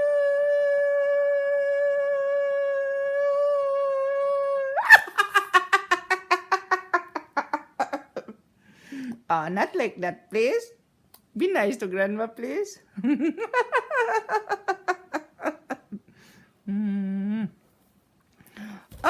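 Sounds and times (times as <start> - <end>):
voice holding long note and yelping: 0.0 - 5.3.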